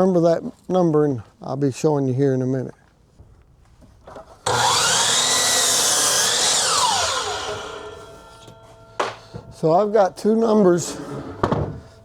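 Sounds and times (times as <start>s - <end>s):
power tool motor whine: 4.4s - 8.8s.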